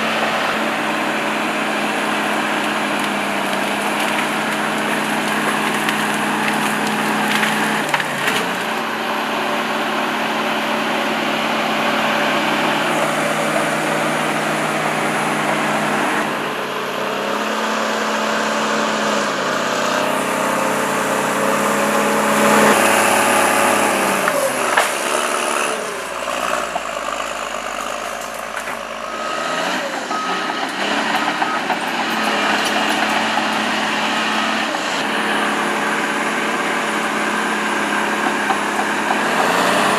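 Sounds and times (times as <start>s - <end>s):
heavy machinery engine running: 0.0s - 39.9s.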